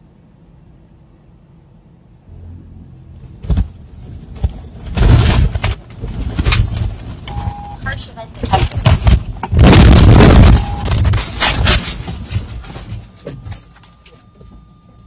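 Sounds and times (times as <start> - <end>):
low vehicle rumble: 0.0 - 15.0
truck crash with clattering: 3.2 - 14.2.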